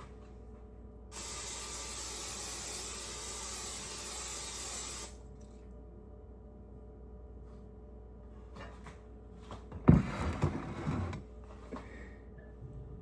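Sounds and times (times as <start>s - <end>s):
steady hiss: 1.2s - 5.2s.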